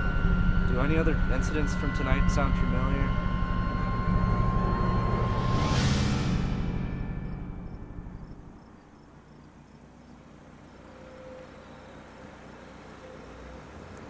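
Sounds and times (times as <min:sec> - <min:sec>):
loud music hit: 0:00.0 - 0:08.8
car engine rumbling: 0:00.0 - 0:14.0.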